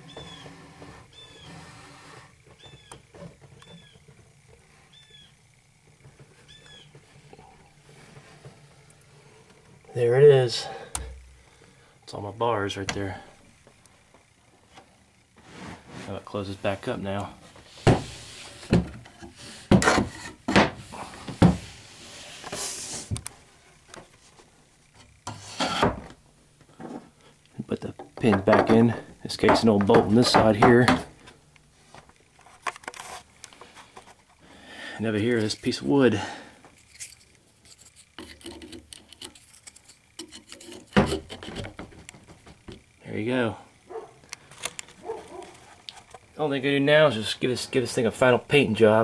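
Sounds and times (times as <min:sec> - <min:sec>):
wood scraping against wood: 0:00.0 - 0:05.3, 0:15.4 - 0:27.2, 0:28.1 - 0:34.5, 0:35.1 - 0:42.9, 0:43.9 - 0:46.4
small bird chirping: 0:02.6 - 0:04.1, 0:04.9 - 0:05.4, 0:06.4 - 0:07.0
sharp wooden knocks: 0:28.0 - 0:31.1.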